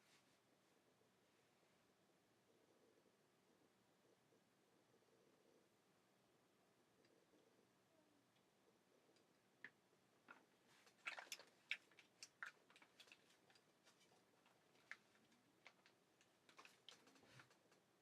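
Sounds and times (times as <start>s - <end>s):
faint sharp clicks and ticks: 8.2s - 18.0s.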